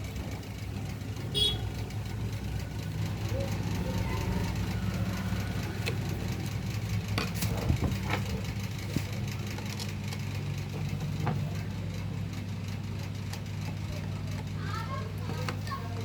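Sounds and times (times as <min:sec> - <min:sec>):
electric fan motor humming: 0:00.0 - 0:16.0.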